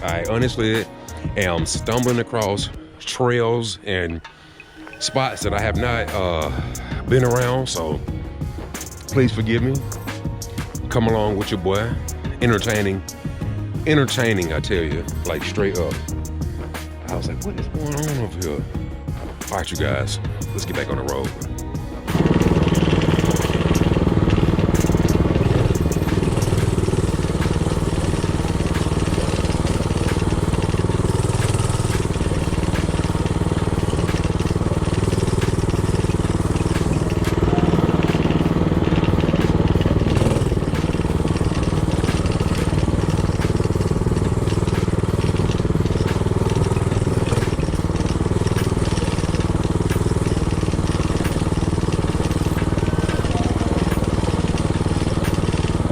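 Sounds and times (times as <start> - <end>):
small engine running while riding: 12.4 - 12.9, 19.2 - 55.9.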